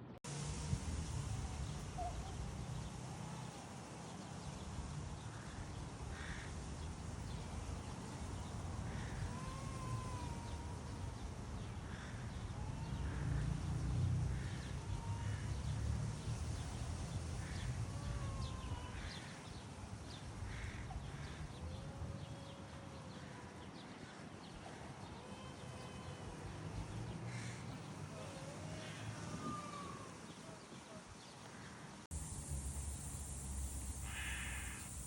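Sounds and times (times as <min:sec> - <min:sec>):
harsh bird calls: 0:08.2 - 0:13.8, 0:33.1 - 0:35.0.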